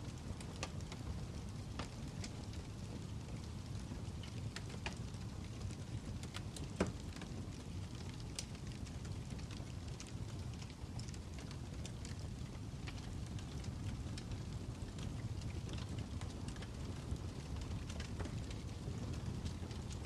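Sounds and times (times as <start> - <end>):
fire crackling: 0.0 - 20.0.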